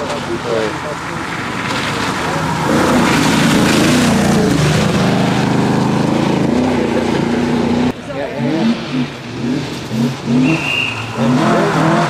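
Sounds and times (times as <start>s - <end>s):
rally car engine passing: 0.0s - 12.0s.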